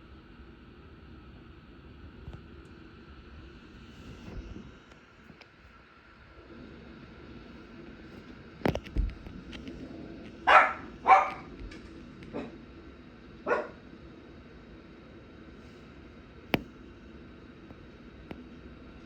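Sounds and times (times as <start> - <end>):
dog barking: 10.4 - 11.5, 12.3 - 12.6, 13.4 - 13.8.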